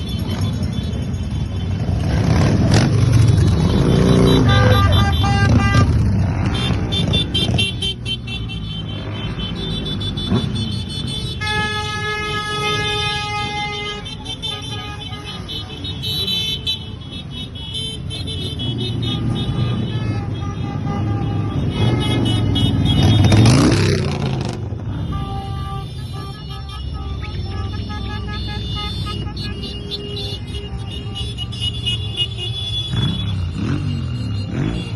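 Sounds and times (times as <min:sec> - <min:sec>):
horn sounding: 0:00.0 - 0:34.9
motorcycles rumbling past: 0:00.1 - 0:07.8.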